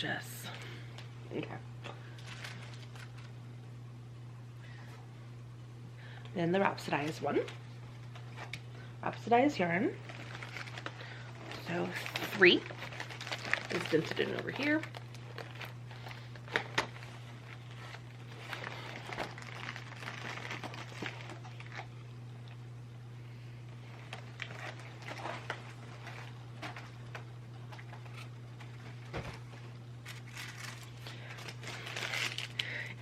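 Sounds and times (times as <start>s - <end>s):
steady low hum: 0.0s - 33.0s
package wrapping rustling: 2.0s - 3.4s, 10.0s - 22.0s, 23.8s - 32.9s.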